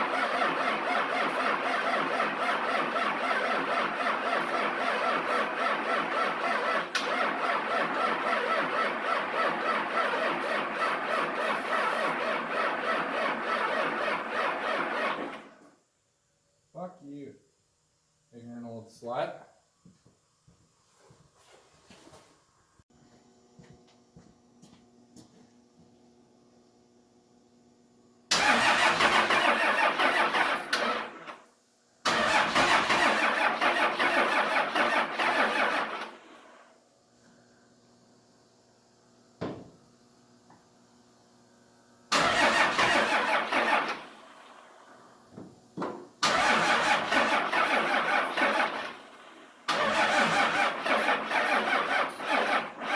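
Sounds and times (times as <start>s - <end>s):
starter motor cranking diesel engine: 0.0s - 15.7s, 28.3s - 36.6s, 42.1s - 45.0s, 46.2s - 52.9s.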